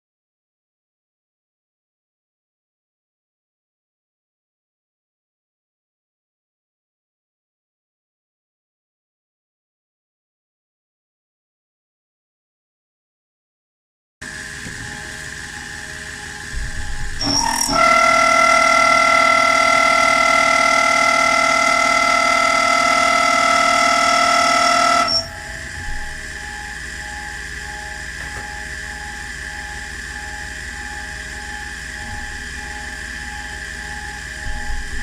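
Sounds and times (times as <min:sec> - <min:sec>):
machine tool whining: 0:14.2 - 0:35.0.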